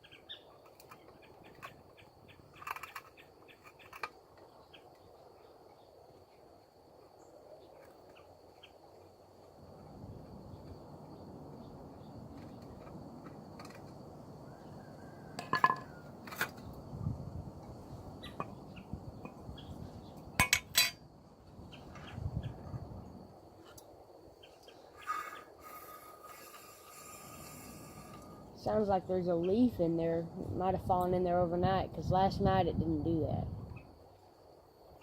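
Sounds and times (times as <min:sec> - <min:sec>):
metal fan parts clinking: 0:15.4 - 0:16.6, 0:20.4 - 0:21.0
scraping rattle inside fan: 0:24.9 - 0:29.4.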